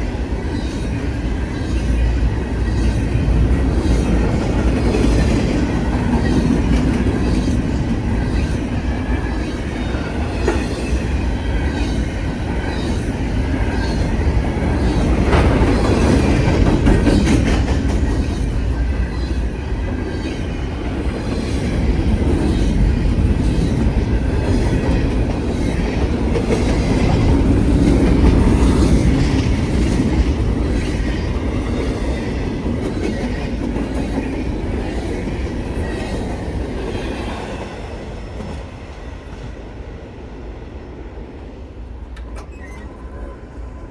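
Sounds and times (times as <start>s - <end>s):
freight train rumbling past: 0.0s - 43.9s
wheel squeal: 42.3s - 43.3s.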